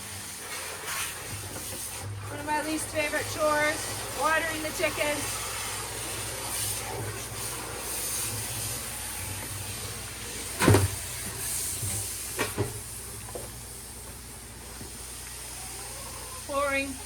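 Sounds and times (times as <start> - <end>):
water hissing: 0.0 - 17.0
loud clunk: 10.6 - 11.0.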